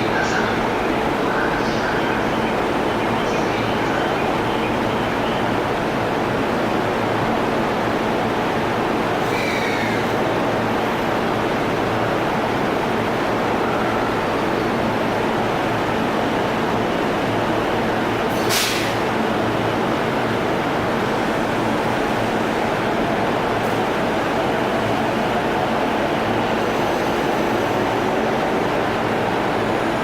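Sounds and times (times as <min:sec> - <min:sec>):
train passing: 0:00.0 - 0:30.0
brief sharp hiss: 0:18.3 - 0:19.1.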